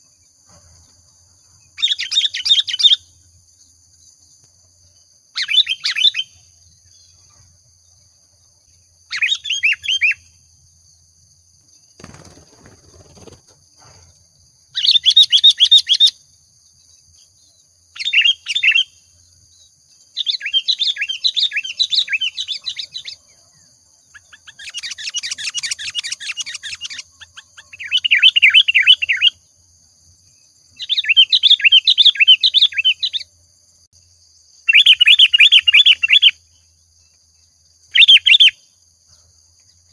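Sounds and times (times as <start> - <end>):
bulbul chirping song: 1.6 - 11.0, 14.6 - 29.6, 30.2 - 33.4, 34.4 - 38.9.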